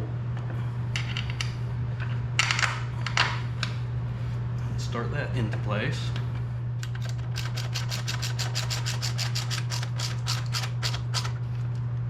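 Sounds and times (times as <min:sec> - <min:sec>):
steady low hum: 0:00.0 - 0:12.0
ratchet wrench clicking: 0:07.3 - 0:11.3.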